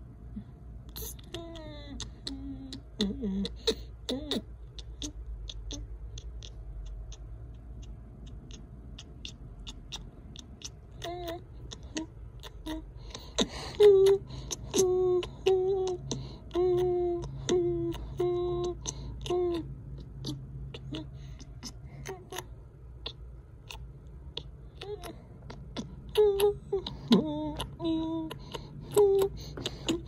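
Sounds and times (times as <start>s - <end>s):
person humming: 0.9s - 6.6s, 8.5s - 30.0s.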